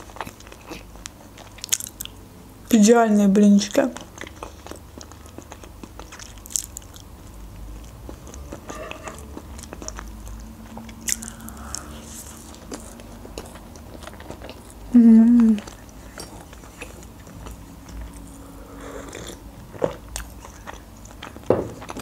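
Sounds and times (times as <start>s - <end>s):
chewing soft food: 0.0s - 2.2s, 3.9s - 22.0s
lip smacks: 9.6s - 14.7s.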